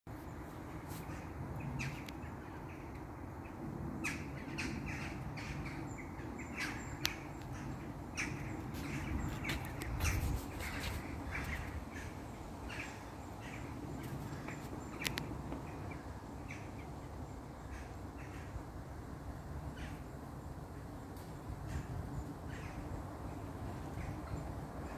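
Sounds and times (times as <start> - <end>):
birds calling: 0.9 - 18.6.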